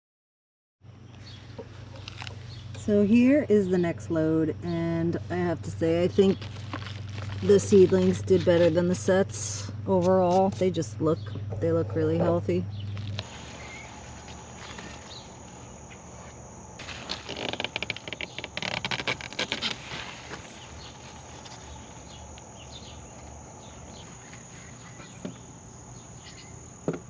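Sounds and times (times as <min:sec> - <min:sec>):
crickets chirring: 0:00.9 - 0:27.0
rustling and crackling: 0:01.1 - 0:02.9, 0:05.1 - 0:09.1, 0:12.8 - 0:25.4.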